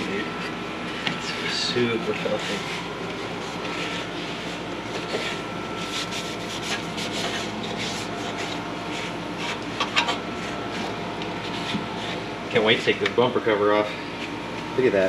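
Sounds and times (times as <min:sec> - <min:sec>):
rubbing and scraping: 0:02.2 - 0:12.3.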